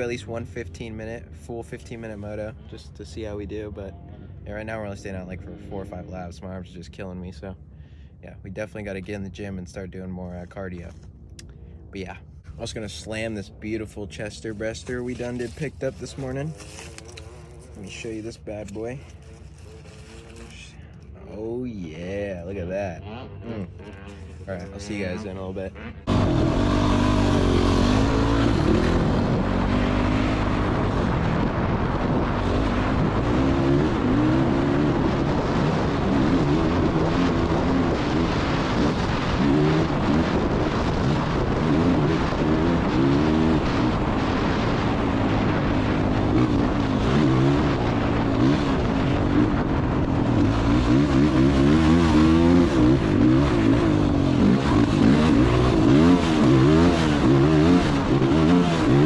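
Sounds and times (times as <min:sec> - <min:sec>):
dirt bike engine revving: 0:22.6 - 0:59.0.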